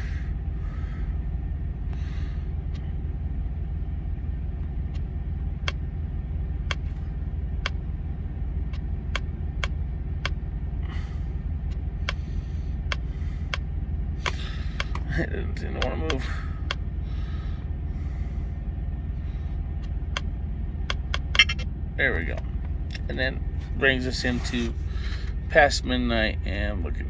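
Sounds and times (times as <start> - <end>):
truck idling: 0.0 - 27.0
buttons clicking: 20.9 - 21.7.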